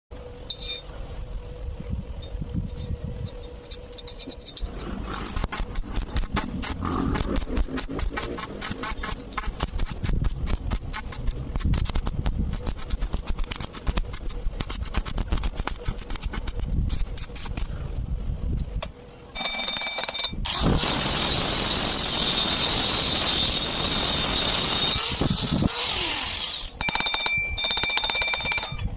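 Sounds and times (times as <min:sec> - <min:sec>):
arc welding crackling: 0:04.9 - 0:17.7
rapid ticking with ringing tones: 0:19.3 - 0:20.4, 0:26.8 - 0:28.9.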